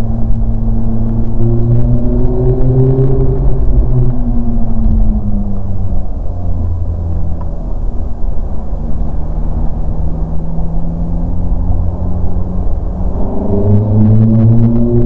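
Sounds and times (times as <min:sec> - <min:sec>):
sports car engine running: 0:00.0 - 0:15.0.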